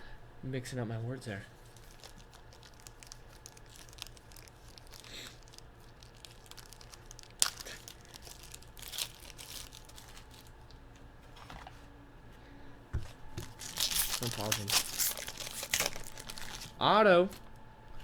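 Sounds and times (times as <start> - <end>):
wrapper tearing and crinkling: 1.6 - 10.5, 13.4 - 16.8
cards clicking and rustling: 1.7 - 10.5, 13.0 - 17.5.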